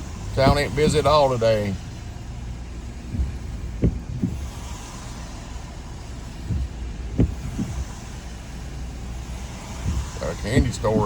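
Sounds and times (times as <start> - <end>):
car road rumble: 0.0 - 11.0
short thumps: 0.0 - 11.0
tyre hiss on wet road: 0.0 - 11.0.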